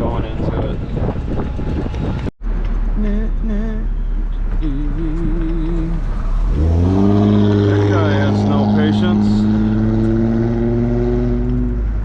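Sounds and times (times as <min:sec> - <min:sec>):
car driving rumble: 0:00.0 - 0:12.0
person humming or singing: 0:03.0 - 0:06.1.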